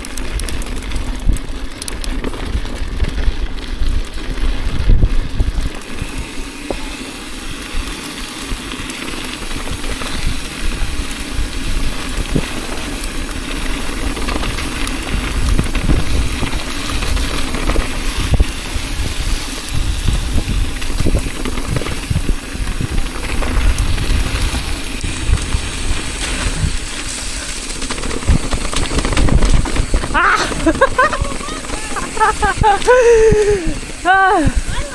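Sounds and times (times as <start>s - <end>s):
tyre and wind rush: 2.4s - 34.9s
bike knocks and rattles: 7.8s - 33.0s.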